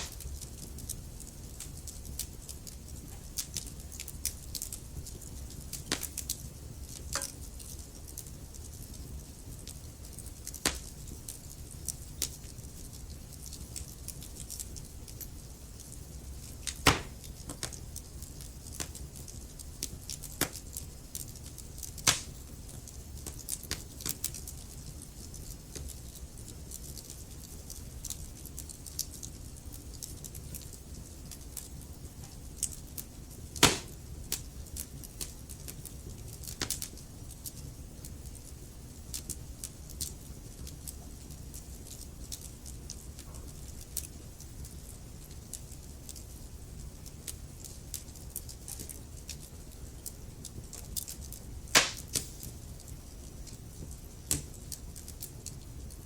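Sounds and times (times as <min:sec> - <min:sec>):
logs crackling and popping: 0:00.0 - 0:56.0
low fire rumble: 0:00.0 - 0:56.0.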